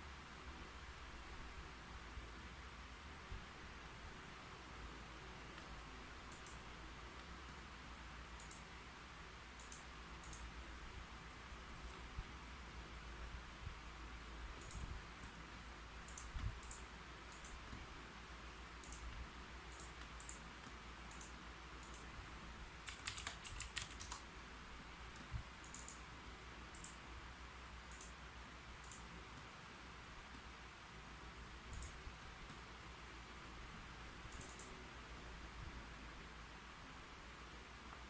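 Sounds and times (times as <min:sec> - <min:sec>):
keyboard keystrokes: 0:22.8 - 0:24.3, 0:25.2 - 0:26.0, 0:34.3 - 0:34.7.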